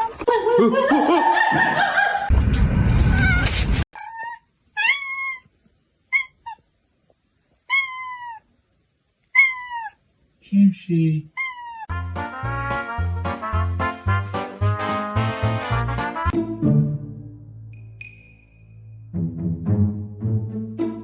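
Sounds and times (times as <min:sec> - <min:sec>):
cat meowing: 0:03.2 - 0:05.5, 0:06.1 - 0:06.6, 0:07.6 - 0:08.5, 0:09.3 - 0:10.0, 0:11.3 - 0:11.9.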